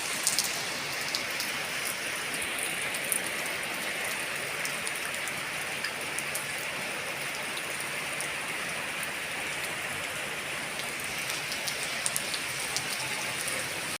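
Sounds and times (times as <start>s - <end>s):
heavy rain falling: 0.0s - 14.0s
raindrops ticking on surface: 0.0s - 14.0s.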